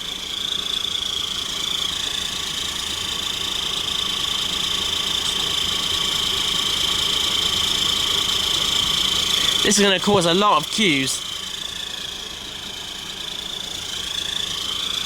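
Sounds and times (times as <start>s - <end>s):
vehicle engines idling: 8.4s - 11.6s.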